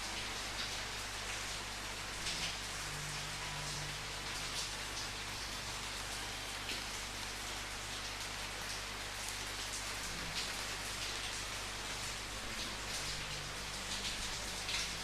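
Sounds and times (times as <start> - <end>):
steady rain hiss: 0.0 - 15.0
raindrop splashes: 2.2 - 5.2, 8.2 - 15.0.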